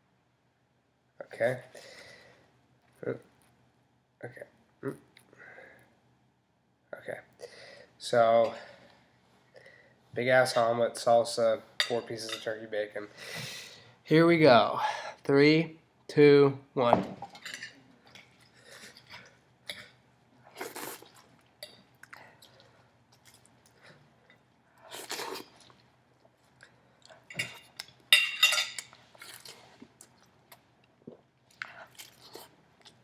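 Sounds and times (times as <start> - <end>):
man chewing food: 18.0 - 28.1, 28.8 - 33.0.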